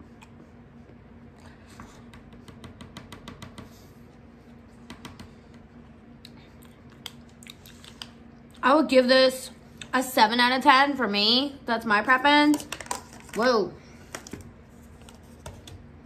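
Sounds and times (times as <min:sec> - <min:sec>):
faint steady hum: 0:00.0 - 0:16.0
chewing food close up: 0:06.2 - 0:08.2.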